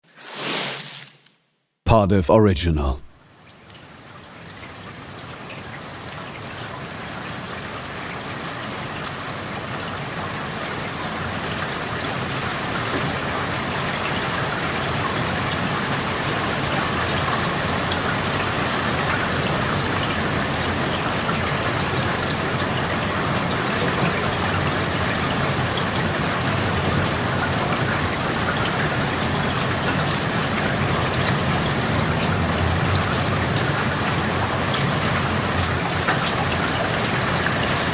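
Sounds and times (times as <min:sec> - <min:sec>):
rain falling: 0:04.4 - 0:37.9.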